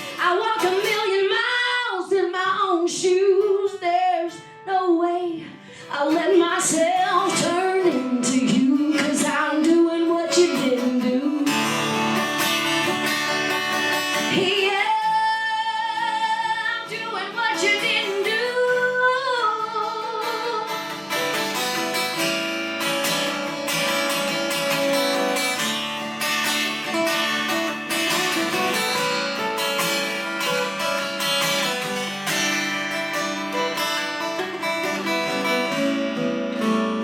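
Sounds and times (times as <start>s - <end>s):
person singing: 0.0s - 12.3s, 14.1s - 21.8s
acoustic guitar strumming: 0.0s - 37.0s.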